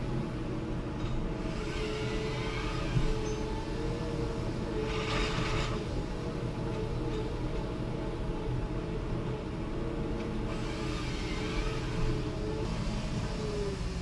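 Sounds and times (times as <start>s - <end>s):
diesel engine whining: 10.5s - 14.0s.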